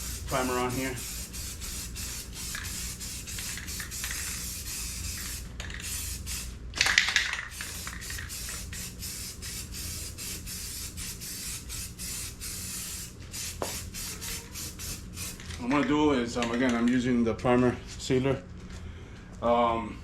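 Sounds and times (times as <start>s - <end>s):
spray can hissing: 0.0s - 6.5s, 7.2s - 15.5s.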